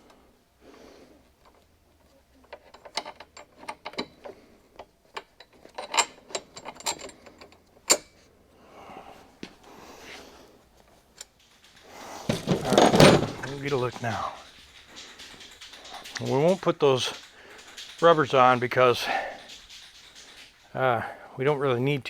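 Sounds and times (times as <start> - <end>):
metal hardware clinking: 2.4 - 8.2, 11.1 - 20.7.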